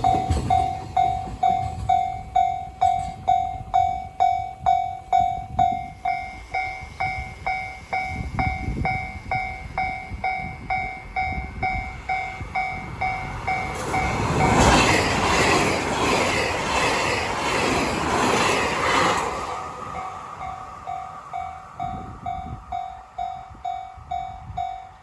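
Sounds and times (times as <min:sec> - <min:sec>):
level crossing alarm bell dinging: 0:00.0 - 0:14.6, 0:20.0 - 0:25.0
train passing at speed: 0:00.0 - 0:25.0.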